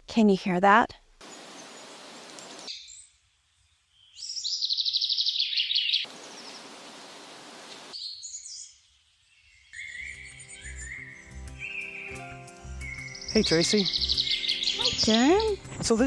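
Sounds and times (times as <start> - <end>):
steady hiss: 1.2 - 2.7, 6.1 - 8.0
songbirds calling and singing: 1.2 - 16.0.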